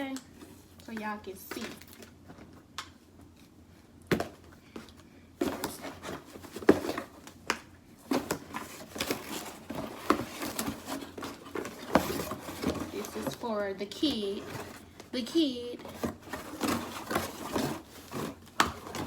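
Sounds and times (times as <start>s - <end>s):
packaging rustling and crinkling: 5.4s - 19.0s.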